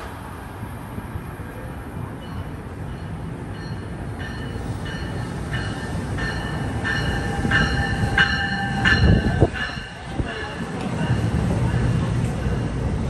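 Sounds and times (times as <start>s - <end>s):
train rumble: 0.0s - 13.0s
train bell ringing: 2.1s - 12.0s.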